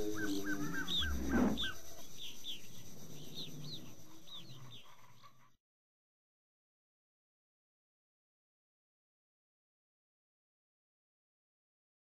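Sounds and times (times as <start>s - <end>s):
birds chirping: 0.0s - 5.6s.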